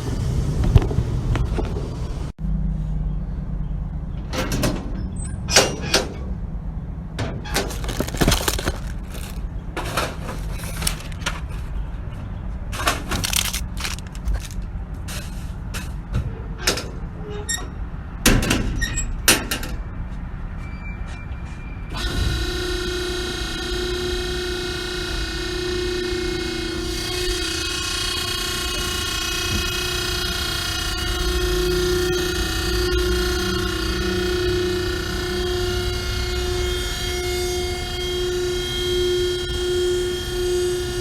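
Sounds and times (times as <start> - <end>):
baler motor humming: 22.0 - 41.0.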